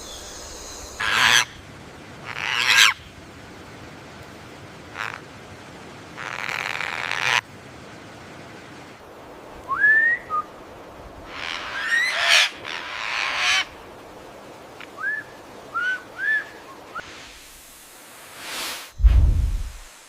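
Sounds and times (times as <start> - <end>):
bird hissing bursts: 17.0 - 19.0.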